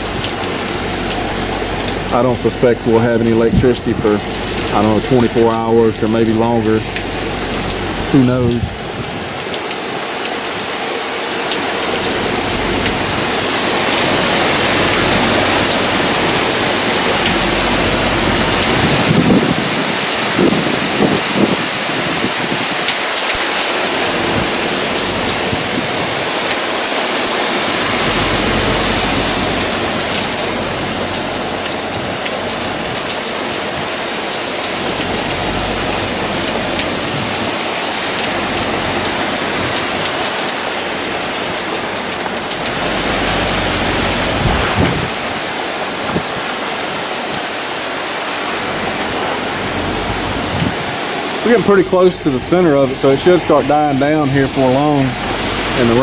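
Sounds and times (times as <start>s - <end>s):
low rumbles: 0.0s - 9.5s, 11.9s - 19.9s, 41.0s - 46.2s, 48.6s - 56.0s
heavy rain pouring: 0.0s - 56.0s
wind gusts: 0.0s - 56.0s.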